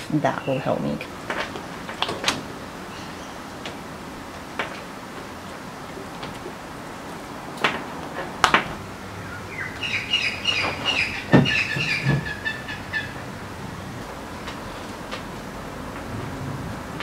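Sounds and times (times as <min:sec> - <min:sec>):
bird chirping high notes: 0:09.2 - 0:13.2
dull thumps on wooden bench: 0:11.3 - 0:12.3.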